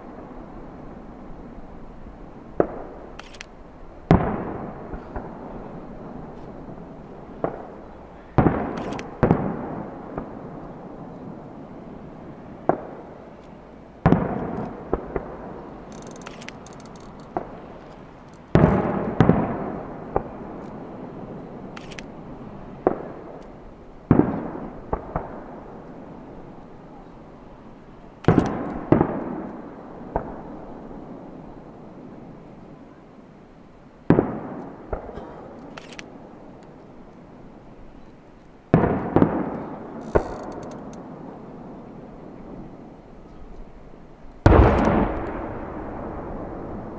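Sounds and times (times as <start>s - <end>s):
firework shells bursting: 14.0s - 20.8s, 28.2s - 30.4s, 44.3s - 46.9s.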